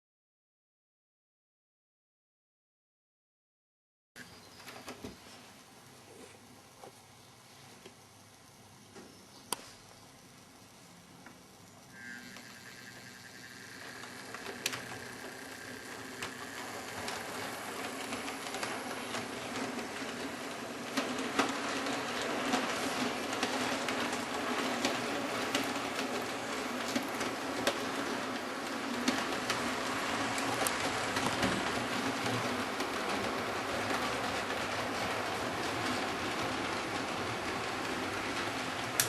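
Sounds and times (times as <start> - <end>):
model train motor humming: 10.2 - 39.0
wheels clicking over rail joints: 11.2 - 39.0.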